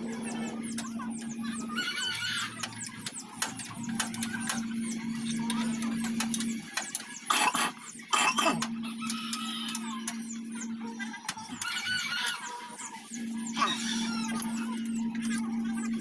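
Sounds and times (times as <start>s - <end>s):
birds chirping: 0.0s - 16.0s
steady low hum: 0.0s - 16.0s.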